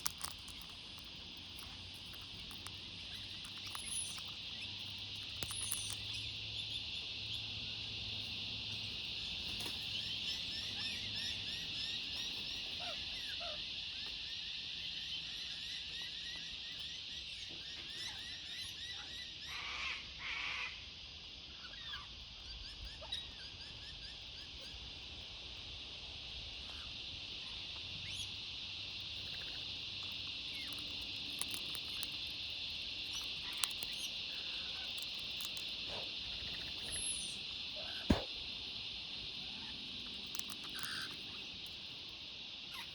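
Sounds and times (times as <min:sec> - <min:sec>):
chorus of chirping animals: 0:00.0 - 0:42.9.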